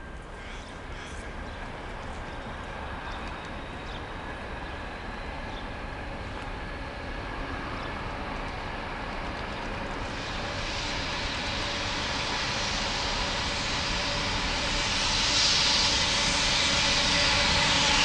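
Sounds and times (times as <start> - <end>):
hiss: 10.0 - 18.0.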